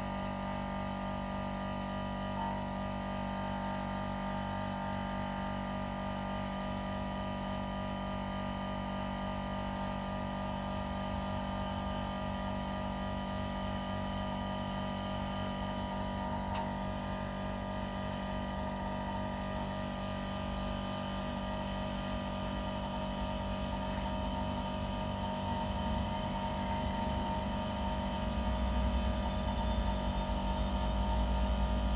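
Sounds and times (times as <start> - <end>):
air compressor humming: 9.4 - 31.9.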